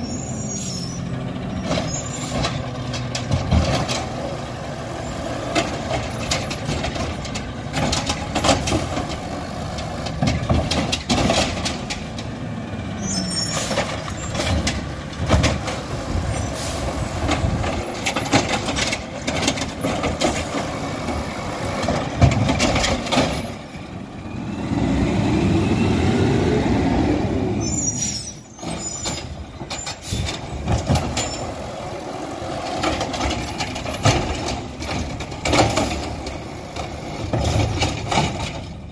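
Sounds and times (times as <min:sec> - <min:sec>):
diesel engine running: 0:00.0 - 0:38.9
metallic clanks and knocks: 0:21.8 - 0:23.6.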